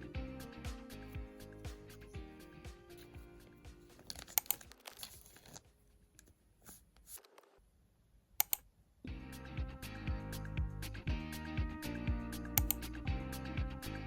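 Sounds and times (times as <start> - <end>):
background music: 0.0 - 4.8, 9.1 - 14.0
plastic packaging crinkling: 4.0 - 5.8.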